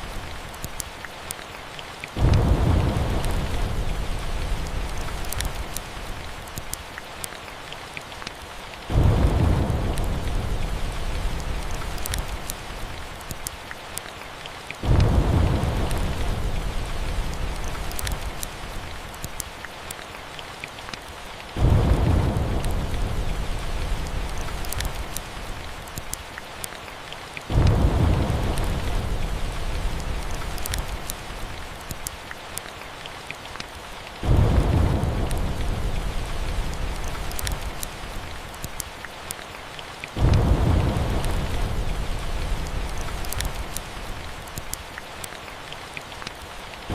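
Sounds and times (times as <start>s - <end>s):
steady rain: 0.0s - 46.9s
thunder rolling: 8.9s - 11.8s, 21.6s - 24.6s, 27.5s - 30.3s, 34.2s - 37.0s.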